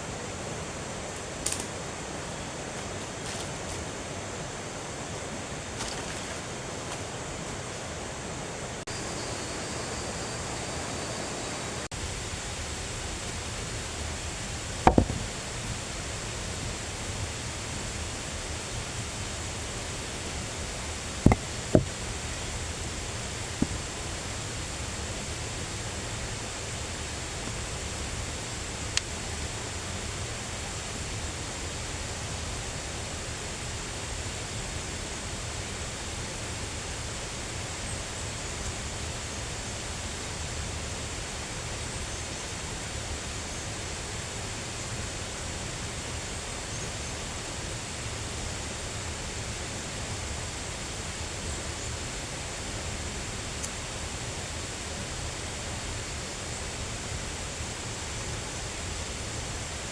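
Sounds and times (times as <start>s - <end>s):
faint high whine: 7.0s - 33.1s
sharp knocks: 14.8s - 15.4s, 21.3s - 22.0s, 23.6s - 23.8s.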